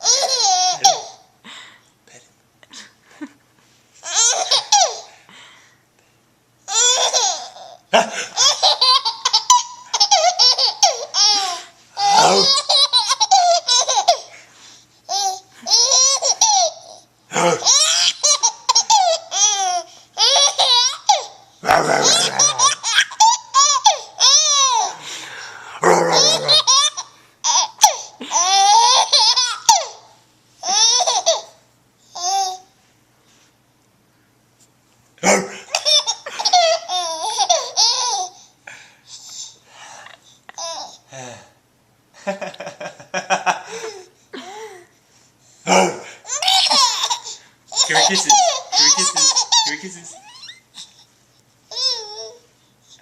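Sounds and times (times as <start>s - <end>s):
baby giggling: 0.0s - 1.2s, 4.0s - 5.1s, 6.7s - 14.4s, 15.1s - 25.0s, 26.1s - 30.0s, 30.6s - 31.5s, 35.2s - 38.4s, 46.3s - 50.6s.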